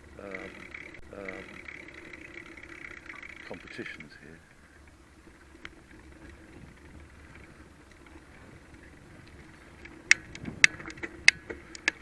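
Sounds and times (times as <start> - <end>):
bicycle rolling hum: 0.0 - 12.0
bike clicks and knocks: 4.8 - 12.0.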